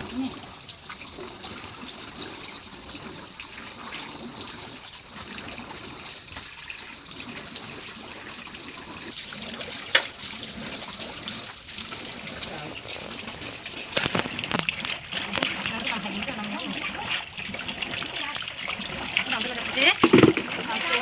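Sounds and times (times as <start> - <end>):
water trickling: 0.0 - 21.0
sharp knock: 20.0 - 20.5.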